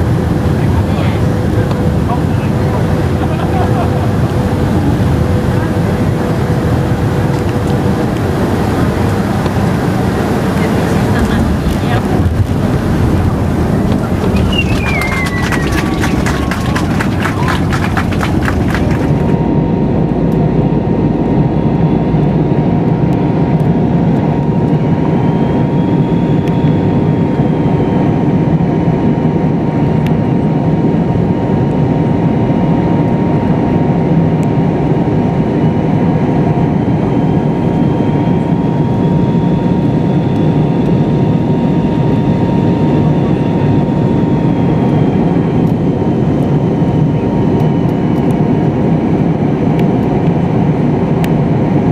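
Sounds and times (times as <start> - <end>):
steady whine: 0.0 - 28.6
airliner cabin engine noise: 0.0 - 51.9.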